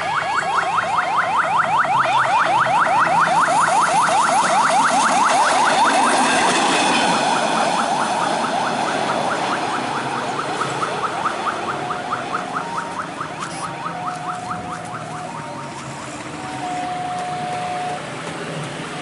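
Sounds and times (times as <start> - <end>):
level crossing alarm chirps: 0.0 - 15.8, 16.4 - 18.0
train rumbling: 4.9 - 10.0, 14.8 - 19.0.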